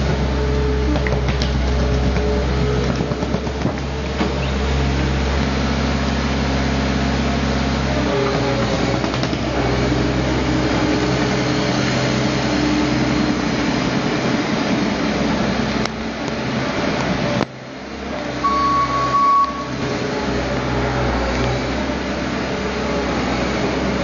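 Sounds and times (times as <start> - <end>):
skid steer engine running: 0.0 - 24.0
high steady tone: 18.4 - 19.8.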